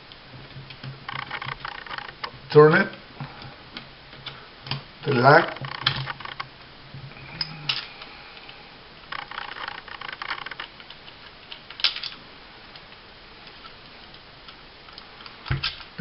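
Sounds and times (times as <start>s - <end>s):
pistol parts clicking and rattling: 9.1s - 12.2s.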